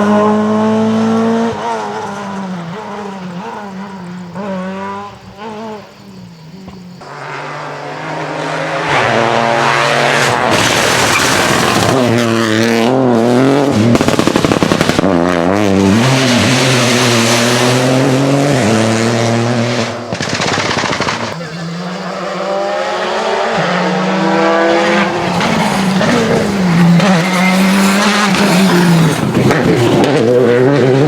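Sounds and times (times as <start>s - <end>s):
rally car engine revving: 0.0s - 6.1s, 6.7s - 31.0s
engine stuttering crackle: 9.0s - 31.0s.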